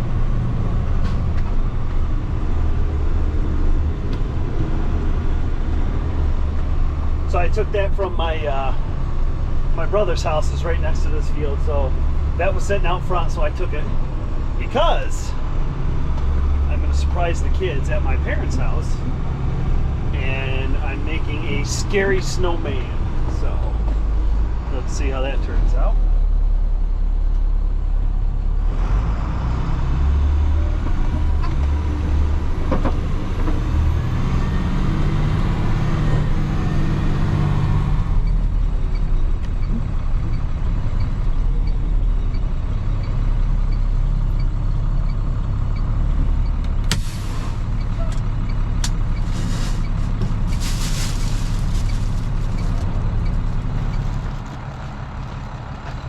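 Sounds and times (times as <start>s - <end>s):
vehicle engine running: 0.0s - 28.5s, 34.9s - 56.0s
short bursts of hissing: 49.2s - 49.9s.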